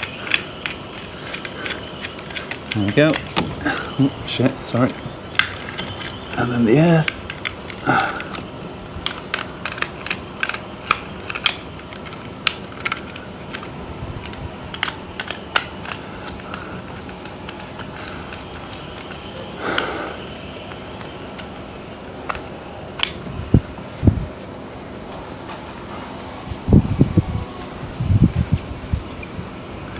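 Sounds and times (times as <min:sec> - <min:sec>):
small clicks and taps on wiring: 0:04.9 - 0:19.2.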